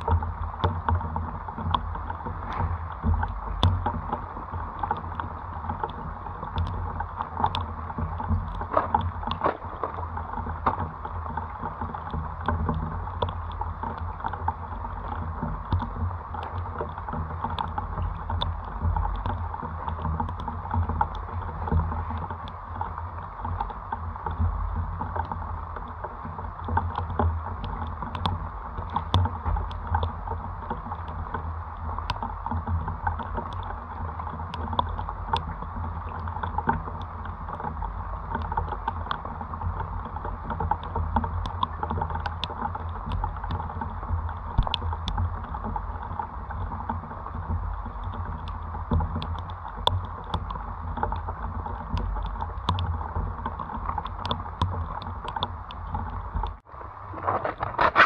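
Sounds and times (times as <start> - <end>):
wind buffeting microphone: 0.0 - 25.0
light ticks: 0.0 - 56.6
steady rain: 0.0 - 58.0.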